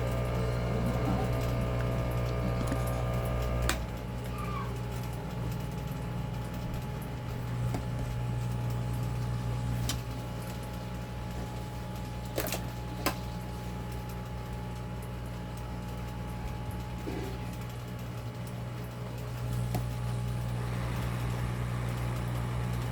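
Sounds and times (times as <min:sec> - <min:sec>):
hot air blower humming: 0:00.0 - 0:04.0, 0:19.4 - 0:22.9.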